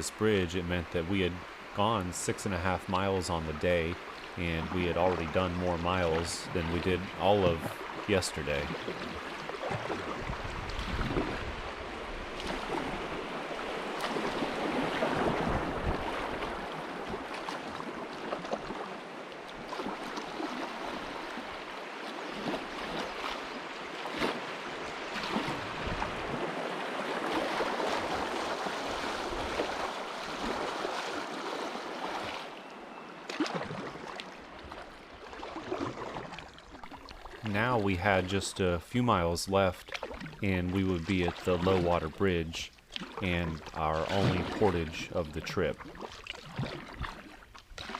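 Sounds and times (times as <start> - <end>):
river water rushing and splashing: 0.0 - 47.9.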